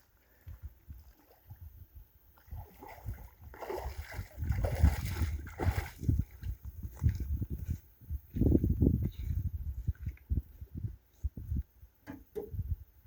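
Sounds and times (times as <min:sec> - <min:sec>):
water splashing and sloshing: 0:00.0 - 0:07.8.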